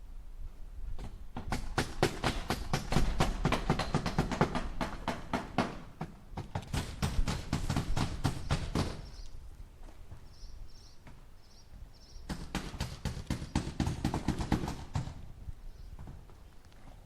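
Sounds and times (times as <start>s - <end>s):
hammer striking nail into wood: 1.4s - 9.0s.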